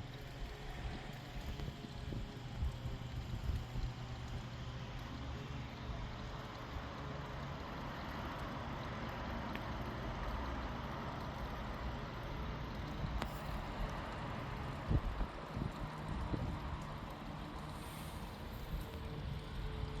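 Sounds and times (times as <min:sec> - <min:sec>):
even hiss: 0:17.5 - 0:19.2.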